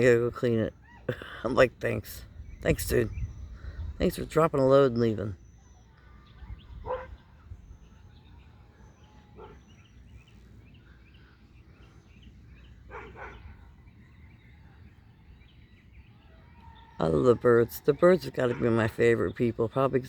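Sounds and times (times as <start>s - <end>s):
small birds chirping softly: 0.0s - 20.0s
low microphone rumble: 2.0s - 4.6s.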